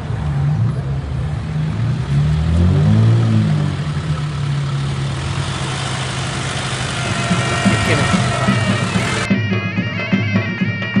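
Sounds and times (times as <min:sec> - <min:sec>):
car engine running: 0:03.6 - 0:09.3.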